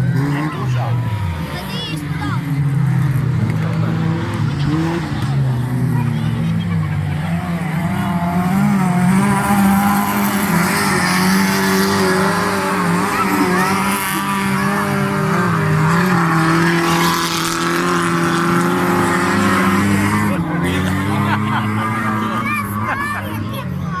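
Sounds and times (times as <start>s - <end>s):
racing engines revving: 0.0s - 24.0s.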